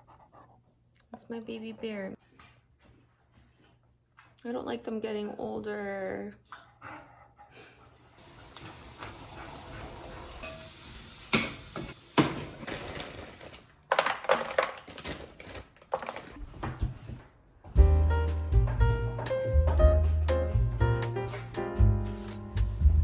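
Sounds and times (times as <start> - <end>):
utensils clinking on dishes: 10.3 - 16.4.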